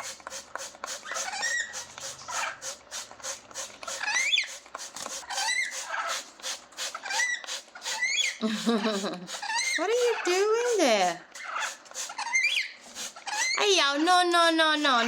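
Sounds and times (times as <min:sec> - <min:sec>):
parrot squawking and chirping: 0:01.0 - 0:02.7, 0:03.8 - 0:04.6, 0:05.2 - 0:06.3, 0:06.9 - 0:08.4, 0:09.3 - 0:13.8.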